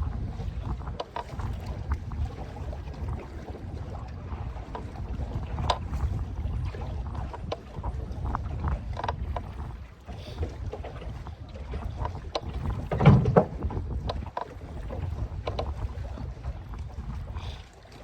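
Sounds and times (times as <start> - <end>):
boat engine rumble: 0.0 - 18.0
gear knocking in boat: 0.0 - 18.0
wind on microphone: 0.0 - 18.0.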